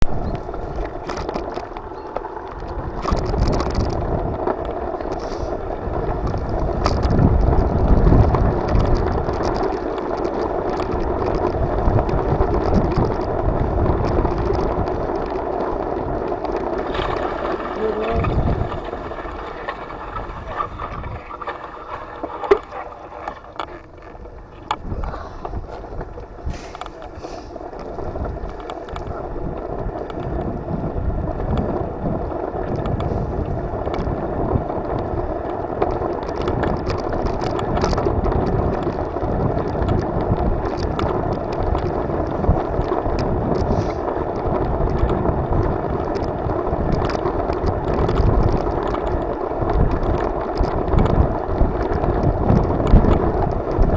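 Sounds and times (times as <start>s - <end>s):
wind rushing over microphone: 0.0s - 53.9s
low rumble: 2.7s - 35.7s.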